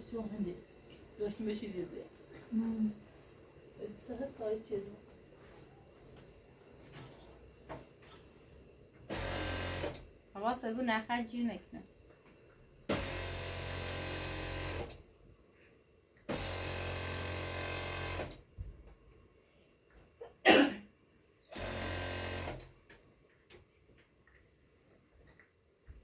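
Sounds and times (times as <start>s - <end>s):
sewing machine stitching: 9.1s - 10.1s, 12.9s - 15.0s, 16.3s - 18.4s, 21.5s - 22.7s.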